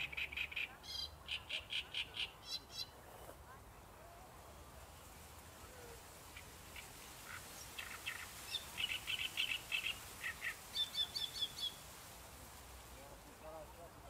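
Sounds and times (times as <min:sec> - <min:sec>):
small bird chirping: 0:06.4 - 0:11.8.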